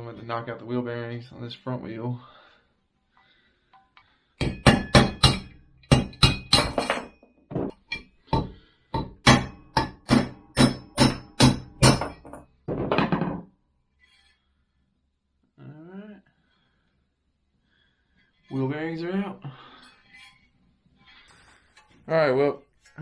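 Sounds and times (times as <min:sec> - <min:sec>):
hammer striking metal: 0:04.4 - 0:12.4
metal clatter: 0:04.4 - 0:13.4.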